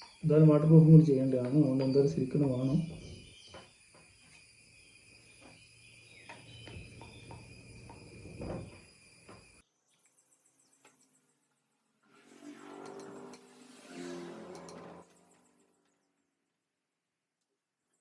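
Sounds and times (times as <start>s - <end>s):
high-pitched insect chirring: 0.0s - 9.6s.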